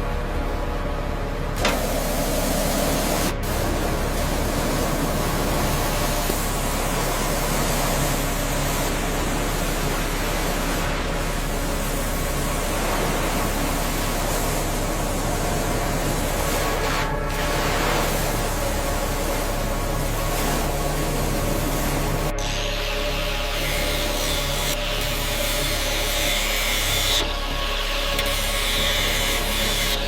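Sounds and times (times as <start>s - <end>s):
pressure washer spraying: 1.7s - 25.0s.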